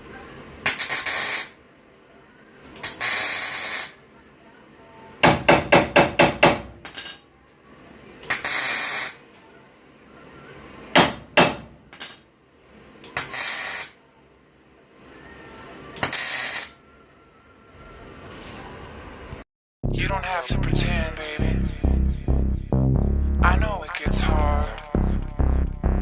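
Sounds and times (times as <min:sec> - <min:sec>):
short bursts of hissing: 0:08.3 - 0:09.2, 0:13.2 - 0:14.0.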